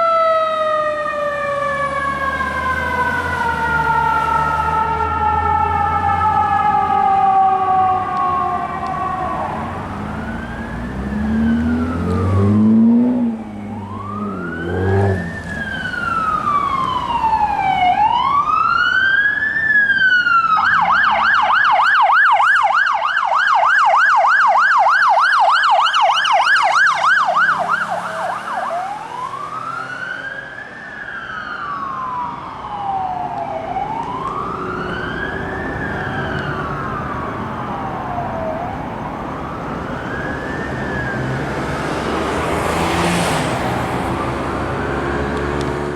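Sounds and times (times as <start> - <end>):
emergency vehicle sirens: 0.0 - 45.9
vehicle engine rumbling: 2.8 - 21.5, 31.6 - 45.9.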